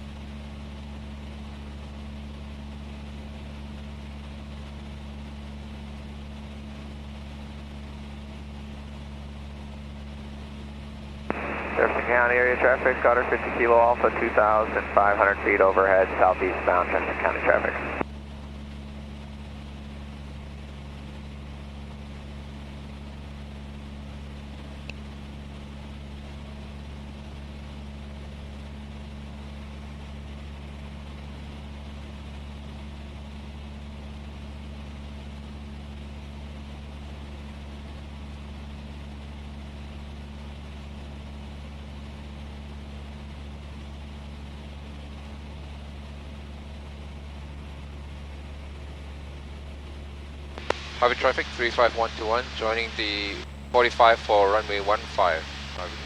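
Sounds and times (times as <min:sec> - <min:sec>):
propeller plane engine droning: 0:00.0 - 0:56.0
faint click: 0:50.5 - 0:51.0.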